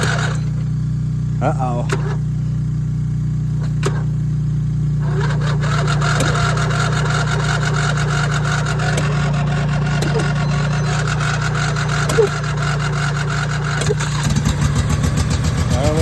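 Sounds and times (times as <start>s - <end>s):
mower engine cranking: 0.0s - 0.8s, 1.4s - 2.6s, 3.5s - 4.2s, 5.0s - 16.0s
rapid regular ticking: 5.6s - 16.0s.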